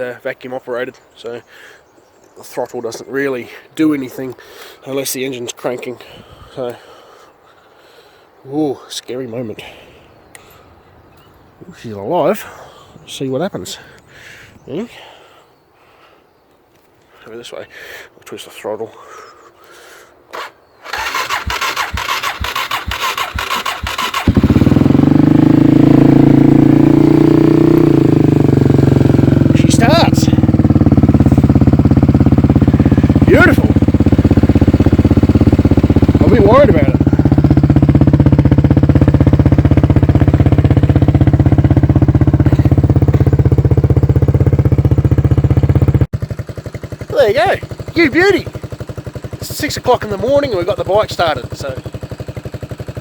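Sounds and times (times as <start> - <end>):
electric starter cranking engine: 20.3 - 25.0
dirt bike engine running: 20.9 - 53.0.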